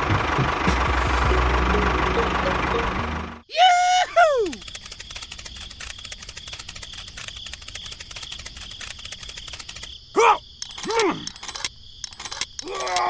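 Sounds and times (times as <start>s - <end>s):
crickets trilling: 3.9s - 13.0s.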